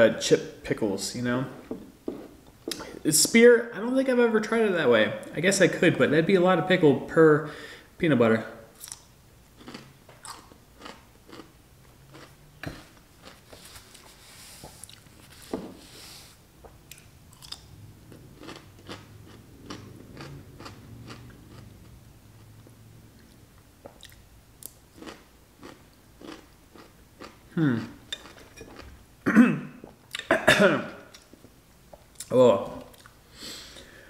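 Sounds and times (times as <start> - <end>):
person crunching pickles: 8.8 - 15.2, 16.9 - 22.0, 23.8 - 29.0.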